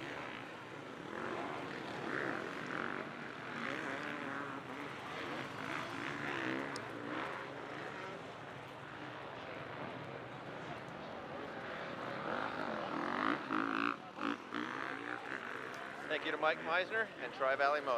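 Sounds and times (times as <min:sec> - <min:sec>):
motocross bikes revving: 0:00.0 - 0:09.7, 0:11.6 - 0:17.9.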